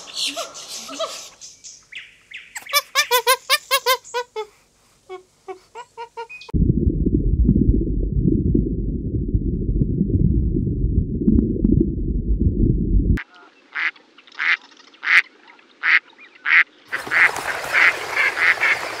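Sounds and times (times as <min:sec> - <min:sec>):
muffled underwater rumble: 0:06.5 - 0:13.2
duck calls: 0:13.7 - 0:15.2, 0:15.8 - 0:18.8
flock of waterfowl calling: 0:15.8 - 0:19.0.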